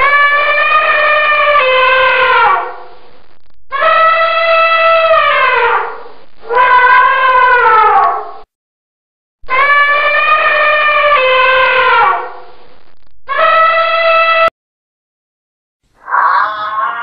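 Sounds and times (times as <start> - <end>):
animal horn-like calls: 16.0 - 17.0.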